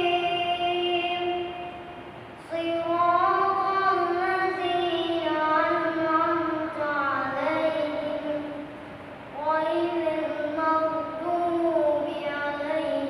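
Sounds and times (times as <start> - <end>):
boy chanting with held notes: 0.0 - 1.8, 2.4 - 8.7, 9.4 - 13.0.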